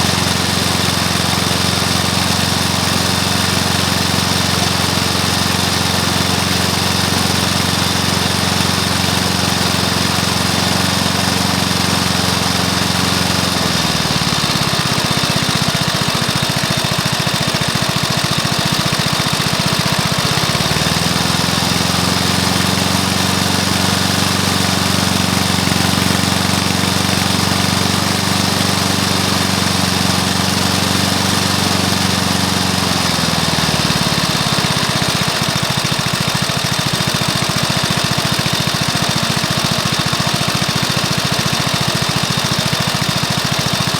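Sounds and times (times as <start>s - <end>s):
lawnmower engine running: 0.0s - 43.9s.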